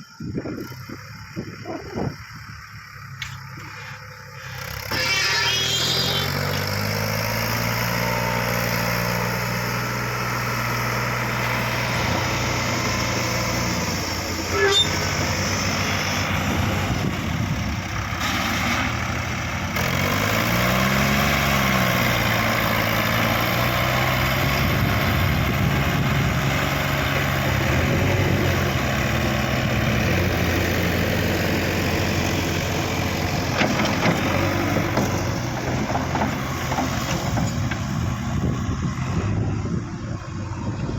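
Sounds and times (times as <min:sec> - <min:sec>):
diesel engine running and revving: 0:00.0 - 0:40.9.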